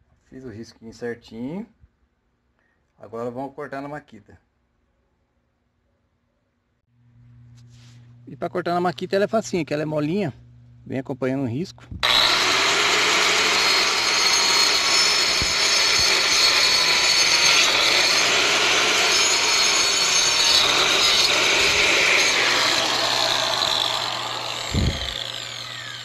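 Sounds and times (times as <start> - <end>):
electric saw cutting: 12.0 - 26.0.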